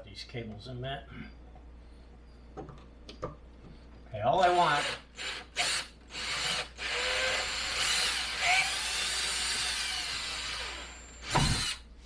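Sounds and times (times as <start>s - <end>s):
drill boring into wood: 4.4s - 11.8s.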